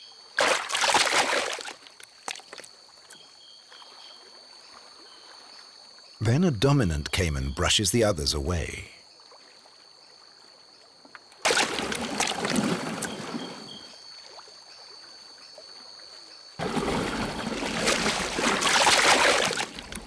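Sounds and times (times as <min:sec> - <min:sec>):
water splashing: 0:00.4 - 0:02.6, 0:11.5 - 0:13.8, 0:16.6 - 0:20.0.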